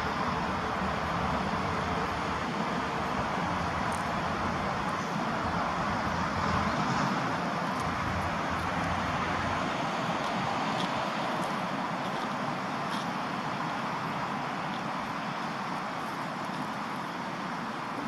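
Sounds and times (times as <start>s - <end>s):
road traffic rush: 0.0s - 18.0s.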